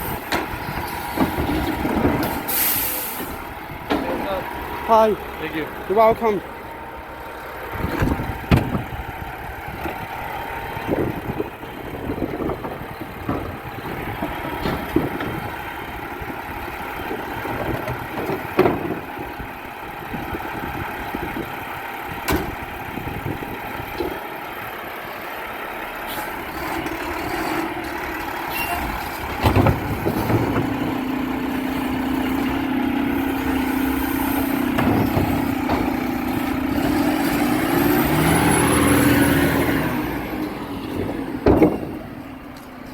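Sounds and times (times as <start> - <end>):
garbage truck running: 0.0 - 42.9
knocks and clanks: 0.1 - 2.5, 3.2 - 4.3, 7.8 - 9.0, 12.3 - 15.7, 17.1 - 19.2, 22.2 - 22.6, 26.6 - 37.9, 40.9 - 42.9.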